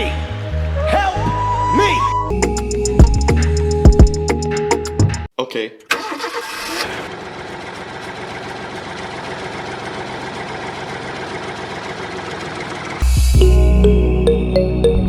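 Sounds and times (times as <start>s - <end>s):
engine idling: 7.1s - 13.2s.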